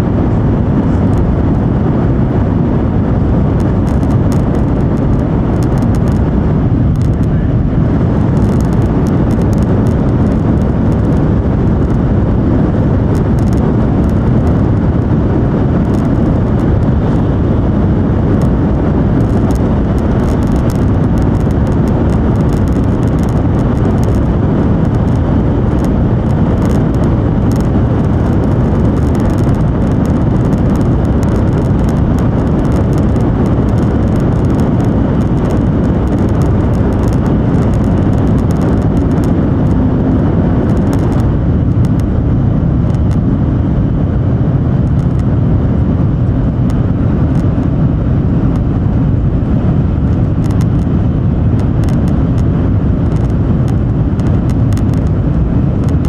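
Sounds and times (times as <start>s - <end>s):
train cabin rumble and rush: 0.0s - 43.4s.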